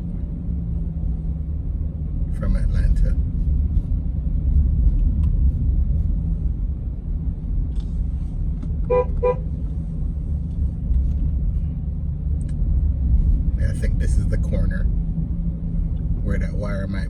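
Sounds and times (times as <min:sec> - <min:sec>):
road and engine rumble inside car: 0:00.0 - 0:17.0
car horn toots: 0:08.9 - 0:09.4.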